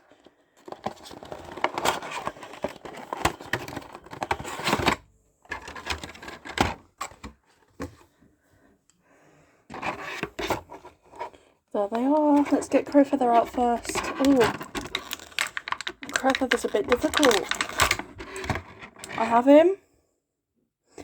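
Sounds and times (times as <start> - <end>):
cardboard box being opened: 13.4 - 18.7.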